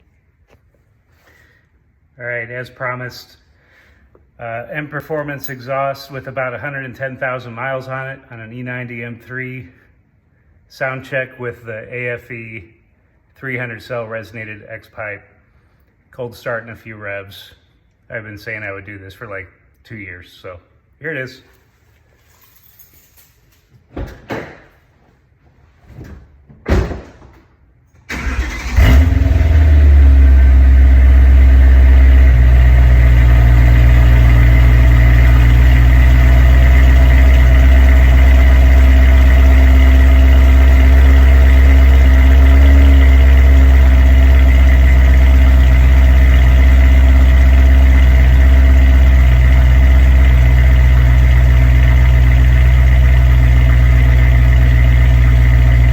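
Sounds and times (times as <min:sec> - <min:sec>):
car engine starting and idling: 0:27.9 - 0:55.9.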